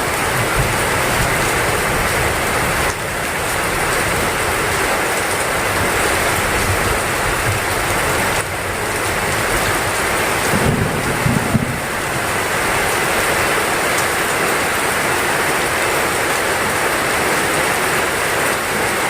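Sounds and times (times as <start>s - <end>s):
heavy rain downpour: 0.0s - 19.0s.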